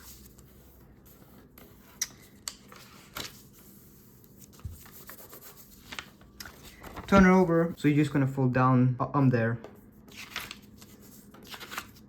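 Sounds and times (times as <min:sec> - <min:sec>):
paper rustling: 0:00.0 - 0:07.8, 0:09.7 - 0:12.0
paper crinkling: 0:02.0 - 0:03.6, 0:04.2 - 0:07.7, 0:10.1 - 0:12.0.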